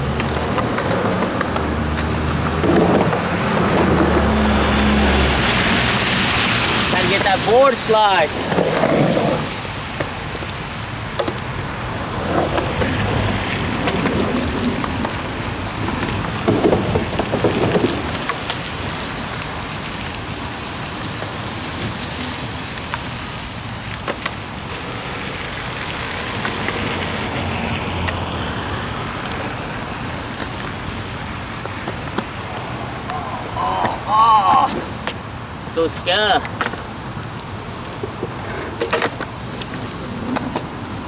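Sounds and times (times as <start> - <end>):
rain falling on pavement: 0.0 - 41.0.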